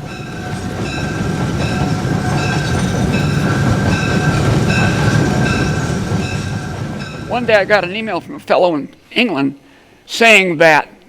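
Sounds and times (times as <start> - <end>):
diesel locomotive rumble: 0.0 - 8.3.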